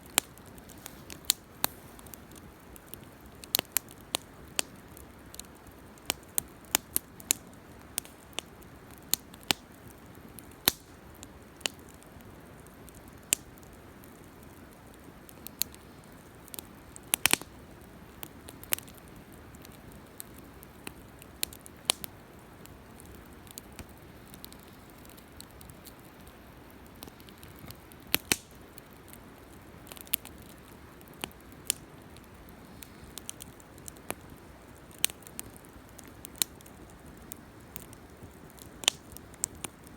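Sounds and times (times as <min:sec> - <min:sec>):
campfire crackling and popping: 0:00.0 - 0:39.9
low fire hiss: 0:00.0 - 0:39.9.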